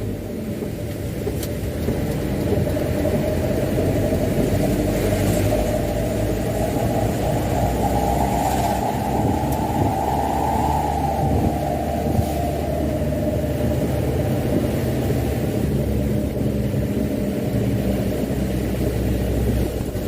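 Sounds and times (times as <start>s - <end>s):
diesel truck engine rumble: 0.0s - 20.0s
road noise: 0.0s - 20.0s.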